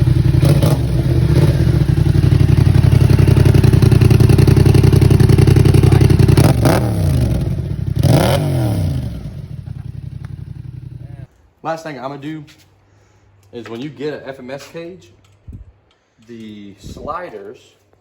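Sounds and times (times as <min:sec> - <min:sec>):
motorcycle engine idling: 0:00.0 - 0:11.3
motorcycle engine revving: 0:00.0 - 0:11.3.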